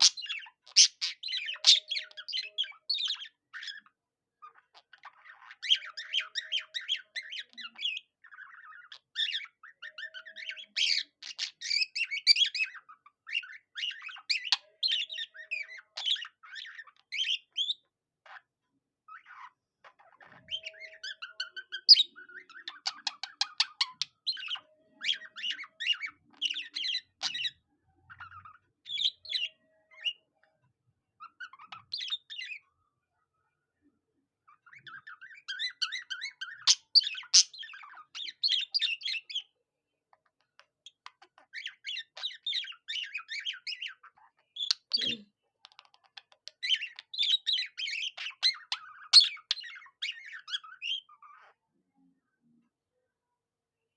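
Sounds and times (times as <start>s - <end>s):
budgerigar warbling and chattering: 0.0s - 18.5s, 19.1s - 32.7s, 34.5s - 39.6s, 40.3s - 51.6s
bird song: 0.0s - 53.9s.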